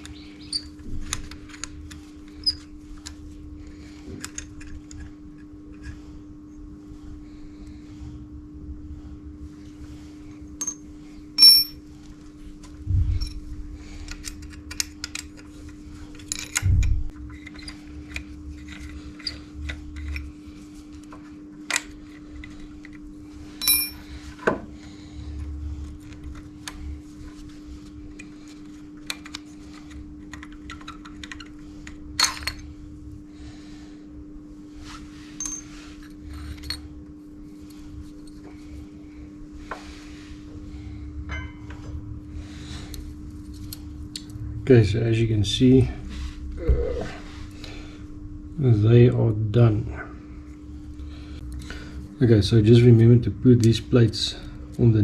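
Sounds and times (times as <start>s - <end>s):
steady low hum: 0.0s - 55.0s
metal parts clinking: 11.4s - 11.8s, 23.6s - 24.0s.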